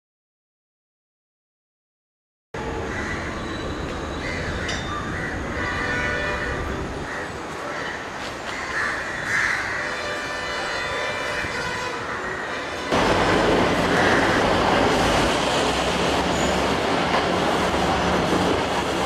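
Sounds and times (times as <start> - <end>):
train rumbling: 2.6 - 19.0
crows cawing: 4.2 - 6.2, 7.0 - 10.0, 13.8 - 14.6.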